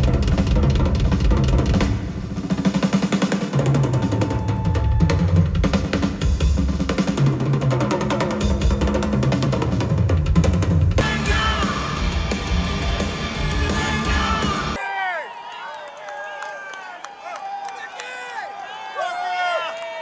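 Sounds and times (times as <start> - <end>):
heavy rock music: 11.0 - 14.8.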